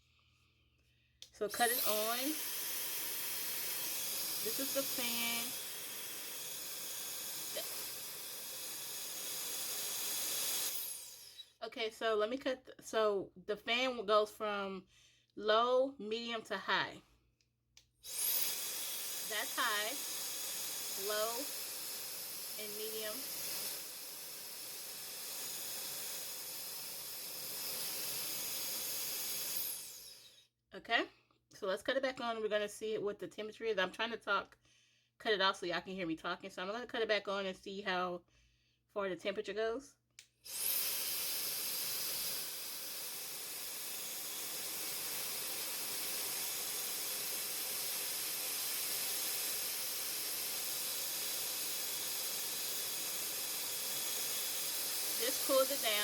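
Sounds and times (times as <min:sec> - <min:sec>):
hair dryer blowing air: 0:01.5 - 0:11.4, 0:18.0 - 0:30.4, 0:40.4 - 0:56.0
motor winding down whine: 0:01.6 - 0:11.5.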